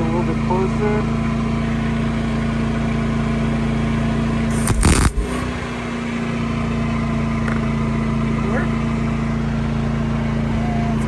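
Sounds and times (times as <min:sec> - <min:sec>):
engine hum: 0:00.0 - 0:11.0
short loud burst of noise: 0:04.5 - 0:05.5.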